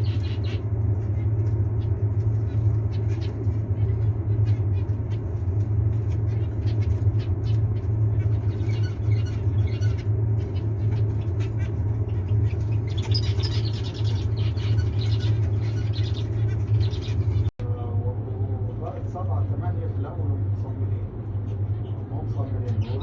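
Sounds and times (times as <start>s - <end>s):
small birds chirping: 0.0s - 17.5s
steady low rumble: 0.0s - 23.0s.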